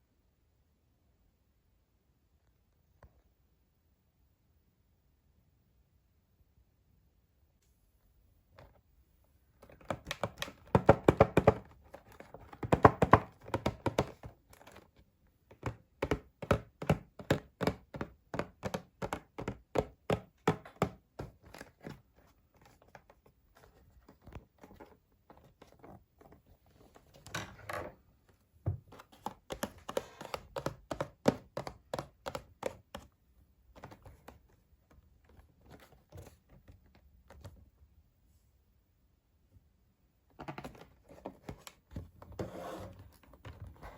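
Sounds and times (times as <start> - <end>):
cardboard and plastic knocking: 9.6 - 14.9, 15.5 - 26.4, 28.6 - 33.1, 33.7 - 37.6, 40.4 - 42.5.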